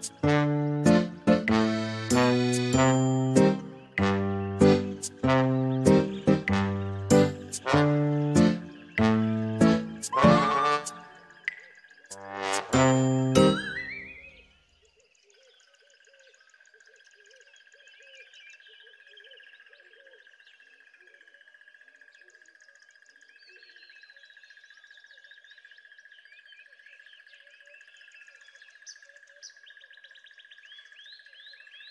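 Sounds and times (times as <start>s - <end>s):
steady high trill: 0.0s - 11.3s, 12.1s - 14.2s
small birds chirping: 0.0s - 12.3s, 13.2s - 31.9s.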